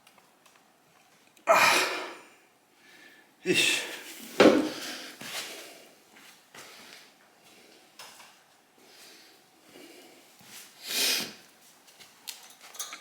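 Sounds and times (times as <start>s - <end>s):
loud huff of breath: 1.5s - 4.0s.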